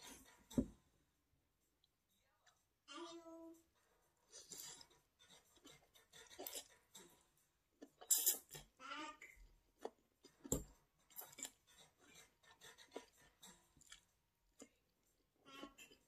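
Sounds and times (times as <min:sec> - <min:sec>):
chewing and mouth noises: 0:11.1 - 0:14.9.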